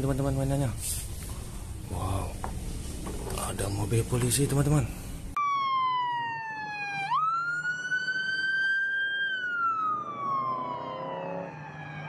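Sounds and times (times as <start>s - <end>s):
toy electronic siren wailing: 5.4s - 12.0s.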